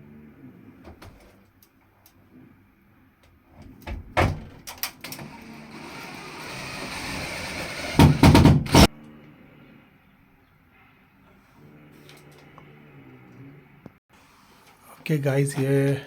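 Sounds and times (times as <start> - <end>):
hard parts knocking and clattering: 3.7 - 8.9.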